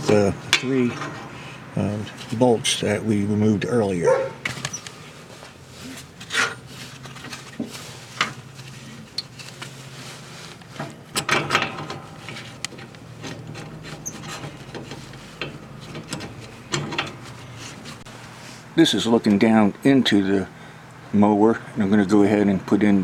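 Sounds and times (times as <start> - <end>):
metal parts and tools clicking: 10.7 - 18.0.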